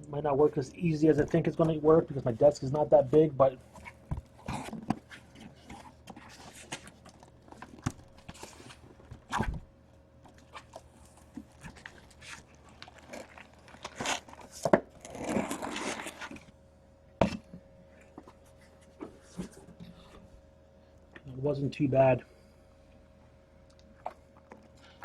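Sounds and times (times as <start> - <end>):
faint steady hum: 0.0 - 25.0
cardboard rustling: 3.7 - 9.6.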